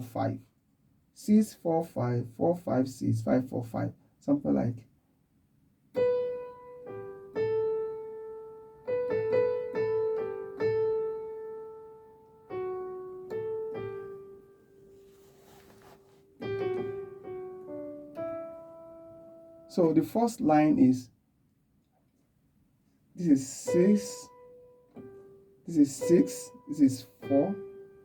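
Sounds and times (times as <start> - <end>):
slow piano melody: 5.9 - 20.1, 23.3 - 28.0.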